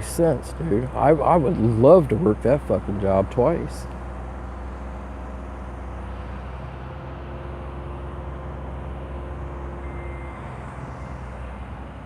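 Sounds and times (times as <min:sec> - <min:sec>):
faint steady tones: 0:00.0 - 0:12.0
low mechanical hum: 0:00.0 - 0:12.0.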